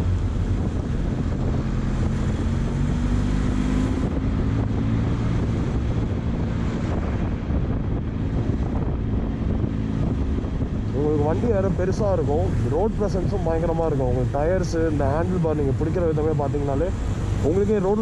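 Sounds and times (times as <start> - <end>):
motorcycle engine cruising: 0.0 - 18.0
wind rushing over microphone: 0.0 - 18.0.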